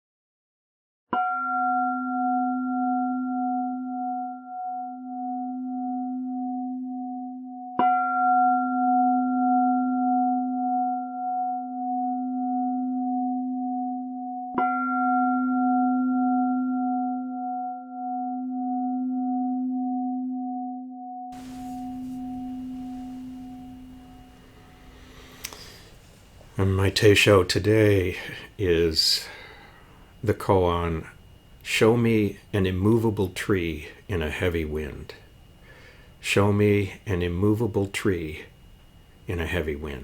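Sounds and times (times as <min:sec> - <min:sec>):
singing bowl ringing: 0:01.2 - 0:20.5, 0:21.4 - 0:26.0.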